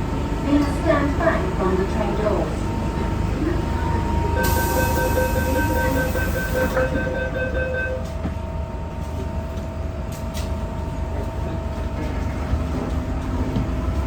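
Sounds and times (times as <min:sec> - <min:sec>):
train low rumble: 0:00.0 - 0:14.0
rapid pulsing door warning beep: 0:04.4 - 0:08.1.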